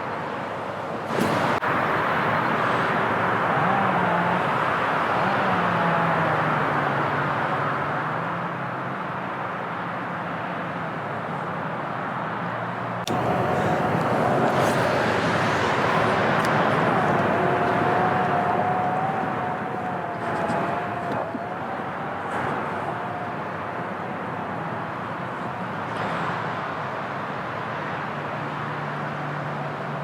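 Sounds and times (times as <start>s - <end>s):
motor traffic hum: 0.8s - 30.0s
low engine drone: 1.1s - 8.1s, 13.0s - 30.0s.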